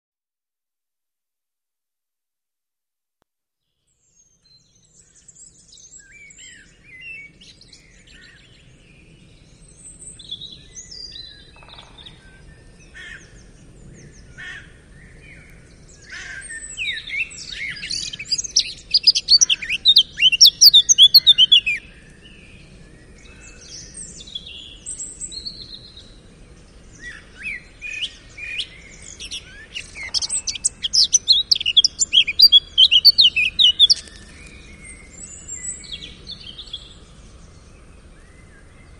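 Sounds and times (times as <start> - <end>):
songbirds chirping and singing: 4.2 - 38.9.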